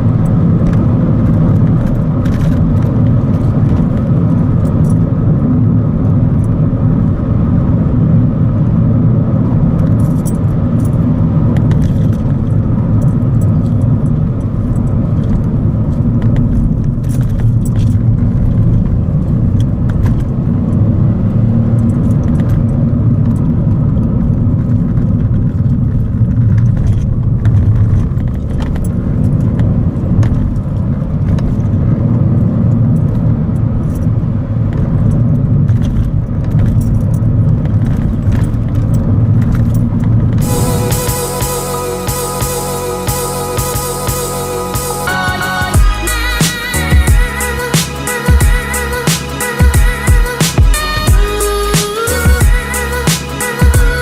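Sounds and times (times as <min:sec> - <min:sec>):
car engine and road noise: 0:00.0 - 0:54.0
small rattling jangling clicks: 0:00.1 - 0:05.1, 0:09.8 - 0:23.6, 0:24.7 - 0:31.8, 0:32.4 - 0:40.3.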